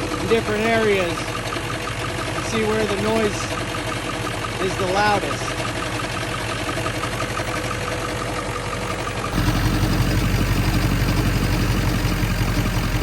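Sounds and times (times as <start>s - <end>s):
diesel engine idling: 0.0s - 13.0s
ticking chatter from engine pulley: 0.0s - 13.0s.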